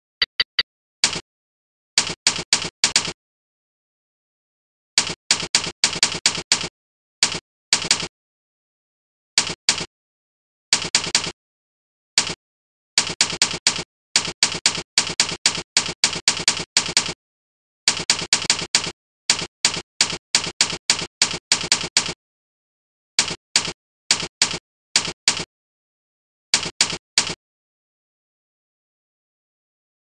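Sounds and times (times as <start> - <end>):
typewriter key clicks: 23.2 - 25.5.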